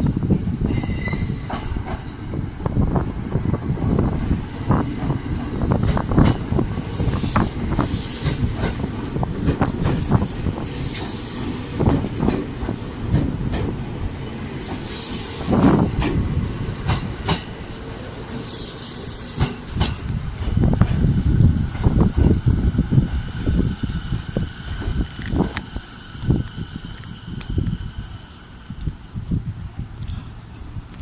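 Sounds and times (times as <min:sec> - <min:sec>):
train wheels clacking on rails: 0:00.3 - 0:02.4, 0:03.8 - 0:22.7
high hissing: 0:06.0 - 0:13.0, 0:14.5 - 0:30.9.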